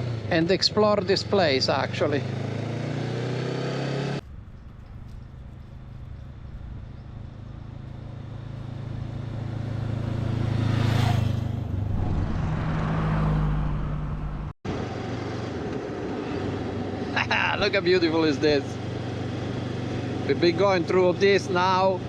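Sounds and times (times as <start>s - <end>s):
road noise: 0.0s - 22.0s
motorcycle engine running: 4.0s - 11.8s
wind noise: 4.2s - 9.5s, 10.6s - 14.9s.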